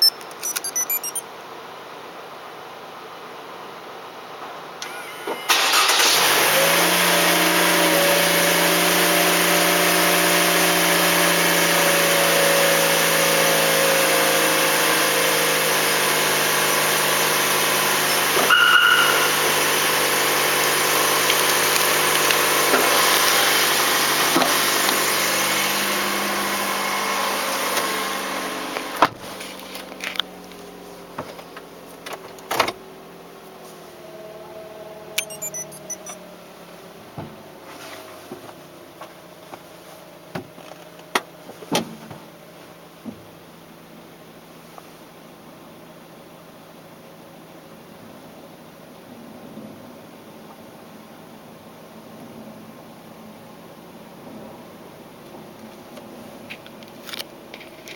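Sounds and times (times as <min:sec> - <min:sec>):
clicks: 0:00.0 - 0:01.2, 0:35.2 - 0:36.2
short beep: 0:00.0 - 0:01.2, 0:18.5 - 0:20.0, 0:34.1 - 0:36.2
car engine starting and idling: 0:04.8 - 0:41.6.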